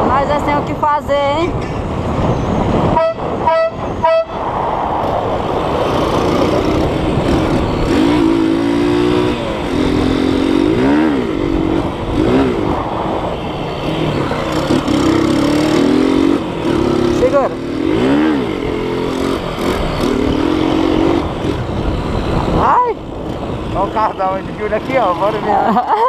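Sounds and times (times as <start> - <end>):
car driving: 0.0 - 26.0
wavering swooping horn tone: 2.4 - 4.5
novelty car horn blasts: 2.9 - 4.4.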